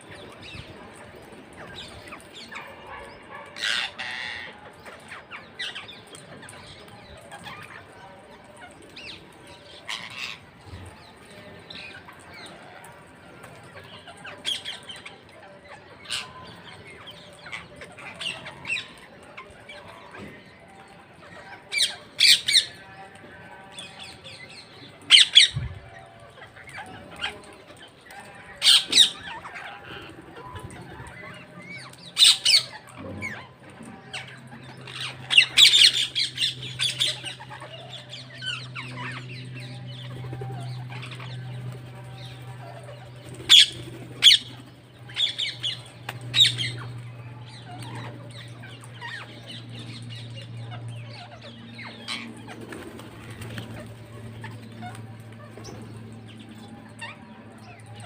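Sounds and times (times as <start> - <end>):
parrots chattering: 1.8 - 6.1, 25.0 - 58.0
parrots screeching: 2.4 - 4.7, 26.8 - 33.5, 34.8 - 39.2, 42.2 - 46.9.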